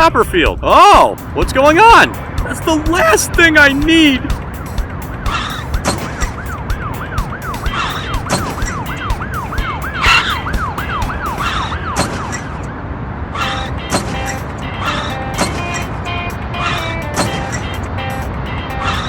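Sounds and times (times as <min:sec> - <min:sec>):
sharp knocks: 0:02.1 - 0:12.2
emergency siren yelping: 0:05.2 - 0:19.0.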